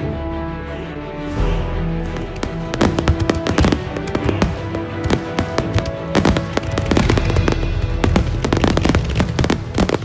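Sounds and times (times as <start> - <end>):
music playing: 0.0 - 10.0
fireworks bursting: 2.4 - 10.0
fireworks crackle: 2.4 - 10.0.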